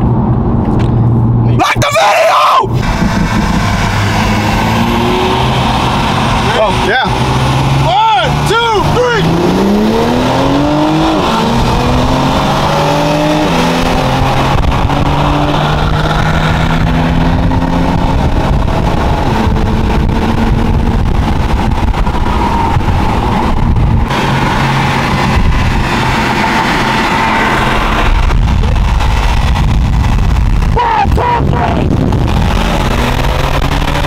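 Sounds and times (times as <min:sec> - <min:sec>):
car engine at full throttle: 0:00.0 - 0:34.0
road and wind noise: 0:00.0 - 0:34.0.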